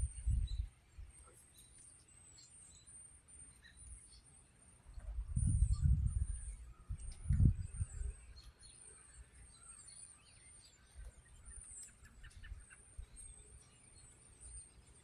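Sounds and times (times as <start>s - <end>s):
wind buffeting microphone: 0.0s - 0.8s, 4.9s - 8.7s
flock of birds calling: 1.0s - 15.0s.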